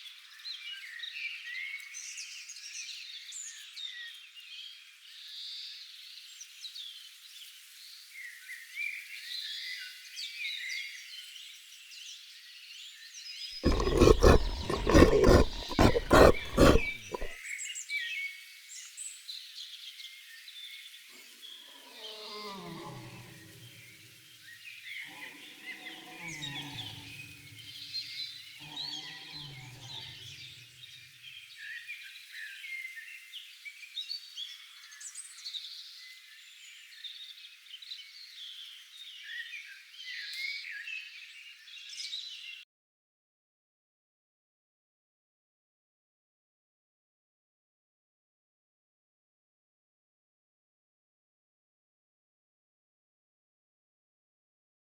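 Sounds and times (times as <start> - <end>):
large animal hoarse rasping calls: 13.6 - 17.4.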